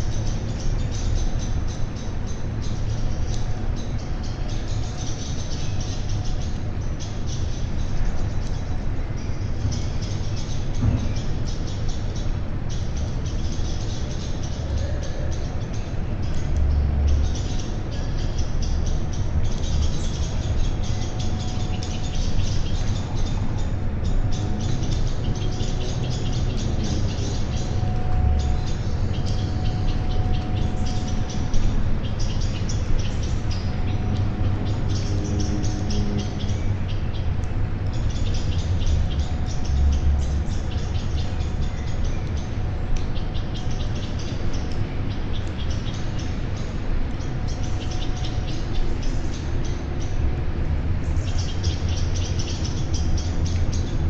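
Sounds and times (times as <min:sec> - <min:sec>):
many birds chirping: 0:00.0 - 0:54.0
steady low rumble: 0:00.0 - 0:54.0.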